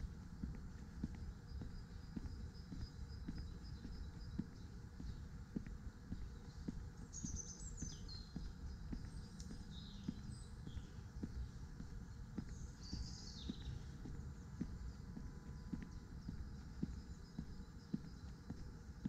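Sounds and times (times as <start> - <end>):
birds chirping: 0.0 - 19.0
low outdoor rumble: 0.0 - 19.0
walking footsteps: 0.0 - 19.0.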